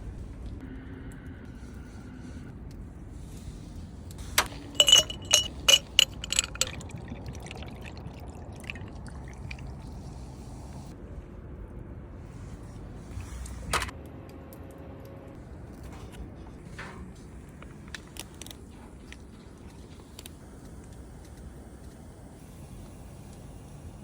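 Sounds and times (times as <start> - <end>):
hard objects clinking: 4.4 - 7.0.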